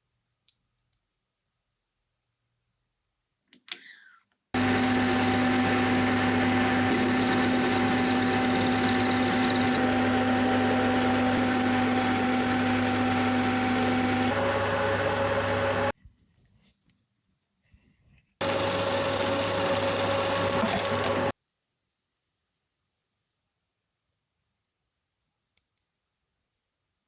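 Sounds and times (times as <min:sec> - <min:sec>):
power tool humming: 0:04.6 - 0:15.9, 0:18.4 - 0:21.3.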